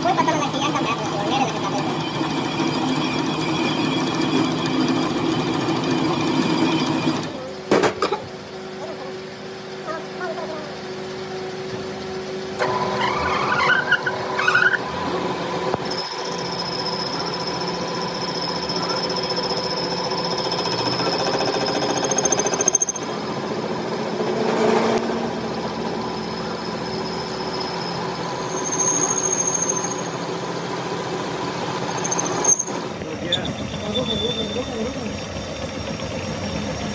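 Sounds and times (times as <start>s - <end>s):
high-pitched metal squeal: 12.6s - 15.0s, 25.3s - 30.2s, 31.8s - 35.8s.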